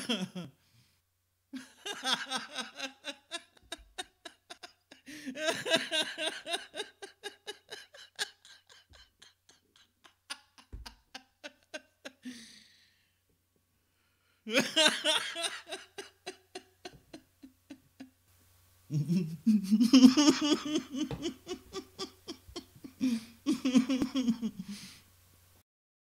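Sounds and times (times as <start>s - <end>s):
people laughing: 1.6s - 12.4s, 14.5s - 18.1s, 18.9s - 24.8s.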